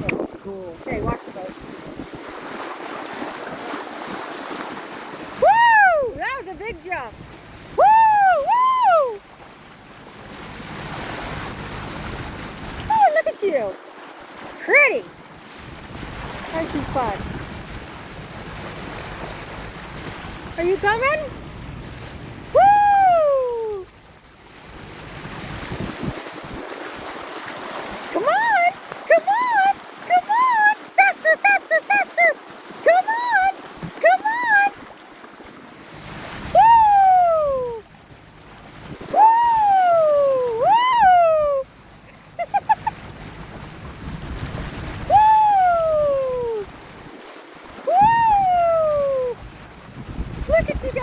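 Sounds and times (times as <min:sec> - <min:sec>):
wind buffeting microphone: 0:00.0 - 0:03.7, 0:15.2 - 0:27.3, 0:35.9 - 0:51.0
sea water washing around boat: 0:00.0 - 0:51.0
person calling woo: 0:05.3 - 0:07.1, 0:07.7 - 0:09.2, 0:12.9 - 0:13.4, 0:20.6 - 0:21.3, 0:22.5 - 0:23.9, 0:28.2 - 0:34.8, 0:36.4 - 0:37.9, 0:39.0 - 0:43.0, 0:45.0 - 0:46.7, 0:47.8 - 0:49.5, 0:50.5 - 0:51.0.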